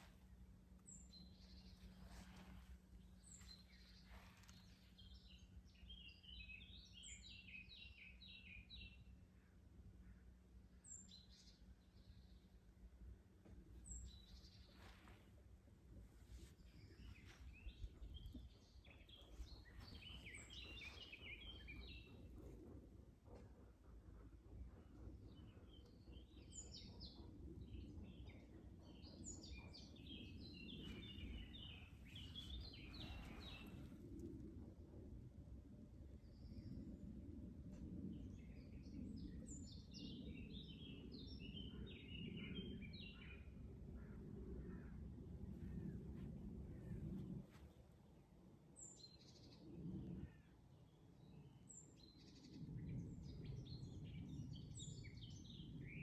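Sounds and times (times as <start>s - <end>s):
low background rumble: 0.0s - 26.4s, 27.1s - 50.6s
songbird chirping: 16.4s - 22.4s, 29.6s - 34.0s.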